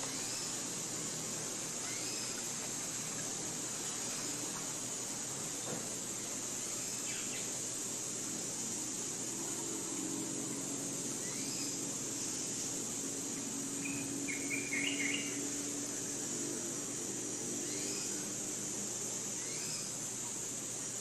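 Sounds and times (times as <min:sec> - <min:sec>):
high-pitched insect drone: 0:00.0 - 0:21.0
bird calls: 0:01.8 - 0:02.4, 0:13.8 - 0:15.5
bird chirps: 0:13.8 - 0:15.4.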